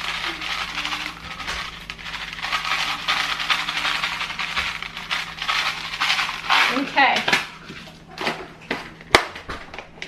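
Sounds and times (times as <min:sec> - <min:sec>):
candies rattling being poured: 0:00.0 - 0:07.9.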